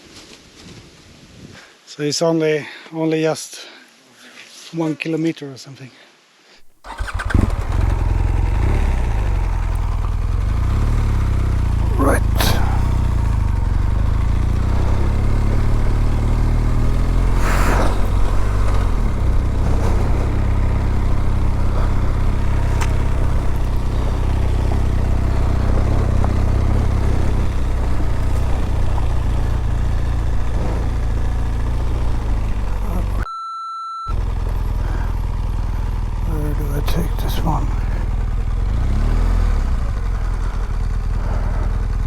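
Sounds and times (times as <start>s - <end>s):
motorcycle engine running: 6.7s - 33.2s, 34.1s - 42.0s
short high beep: 33.2s - 34.1s.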